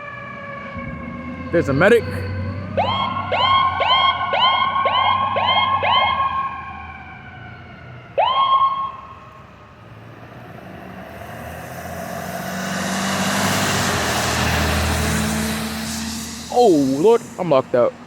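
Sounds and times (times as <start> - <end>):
ambulance siren yelps: 0.0 - 9.5
tyres hissing on wet road: 10.4 - 18.0.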